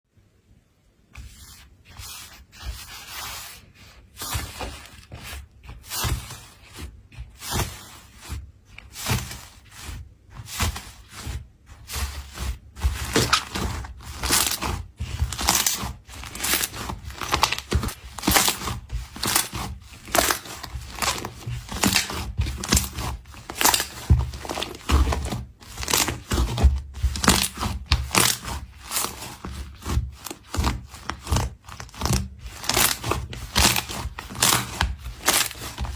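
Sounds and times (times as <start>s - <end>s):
slime squishing by hand: 1.1s - 35.9s.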